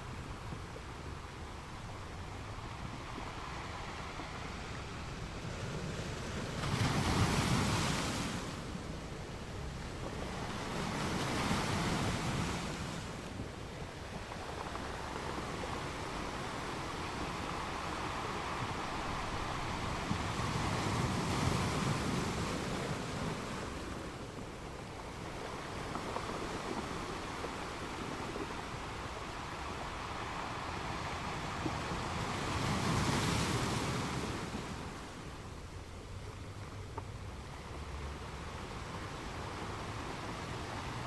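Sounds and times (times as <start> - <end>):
ocean waves breaking: 3.2 - 36.5.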